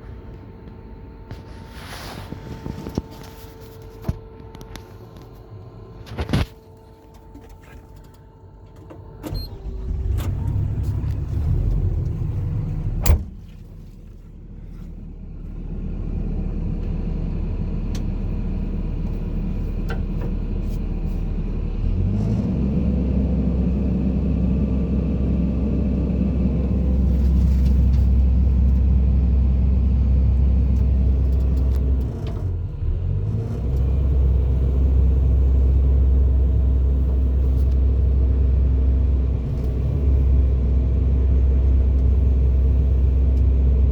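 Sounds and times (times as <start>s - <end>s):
excavator diesel engine rumbling: 0.0s - 43.9s.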